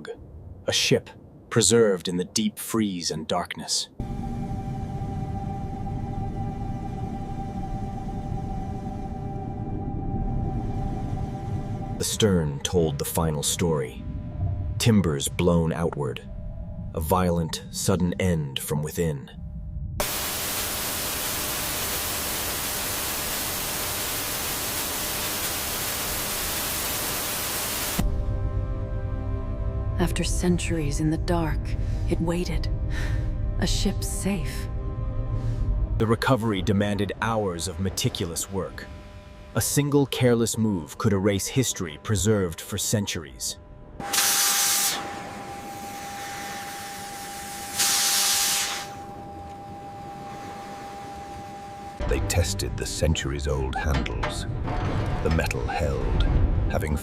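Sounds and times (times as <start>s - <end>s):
steady white noise hiss: 20.0s - 28.0s
thin high hum: 36.4s - 52.1s.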